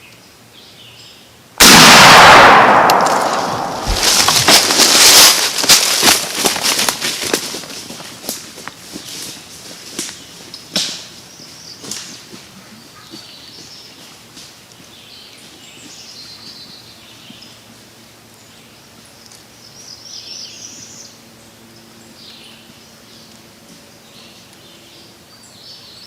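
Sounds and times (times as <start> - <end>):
songbirds chirping: 0.0 - 1.6, 8.6 - 26.0
sharp crackles: 1.6 - 9.3.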